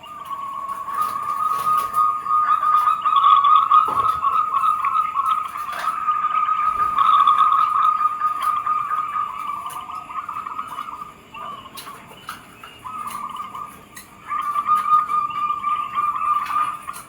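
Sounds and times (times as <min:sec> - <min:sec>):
dove cooing in trills: 0:00.0 - 0:17.0.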